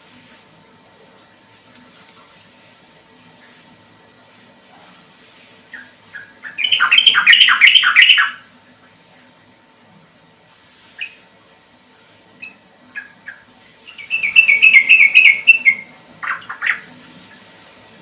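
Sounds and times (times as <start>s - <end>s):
bird chirping and singing: 6.1s - 8.4s, 12.4s - 16.9s.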